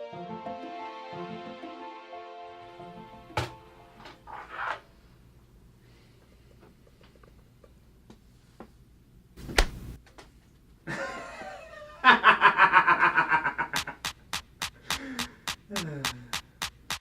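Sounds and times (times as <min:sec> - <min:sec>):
rapid rhythmic laughter: 0:10.9 - 0:17.0.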